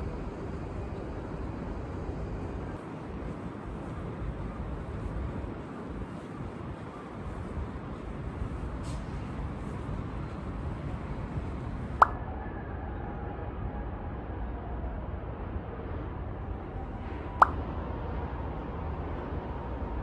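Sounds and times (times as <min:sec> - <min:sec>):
low background rumble: 0:00.0 - 0:12.2.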